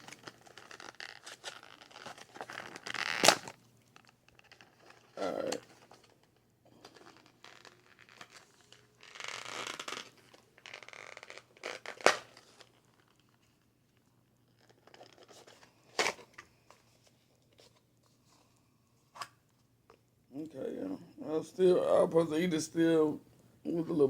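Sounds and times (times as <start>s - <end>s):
snack packaging tearing and crinkling: 0.0s - 13.4s, 14.5s - 16.5s.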